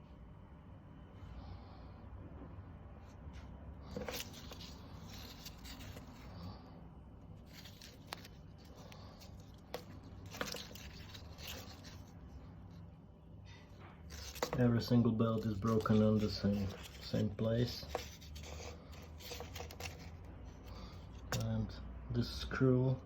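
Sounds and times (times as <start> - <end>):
faint low hum: 0.0 - 23.0
scraping and rustling: 3.4 - 21.8.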